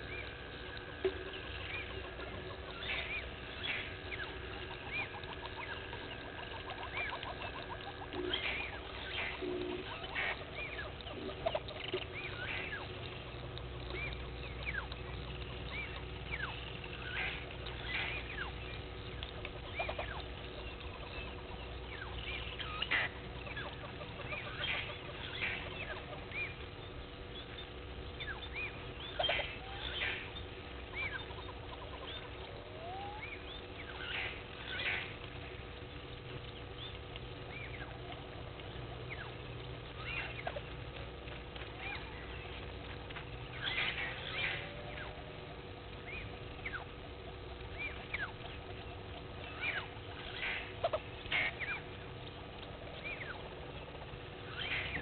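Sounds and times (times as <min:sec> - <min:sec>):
birds chirping and whistling: 0:00.0 - 0:13.0, 0:15.6 - 0:35.2, 0:43.4 - 0:46.9, 0:52.6 - 0:55.0
faint steady hum: 0:00.0 - 0:55.0.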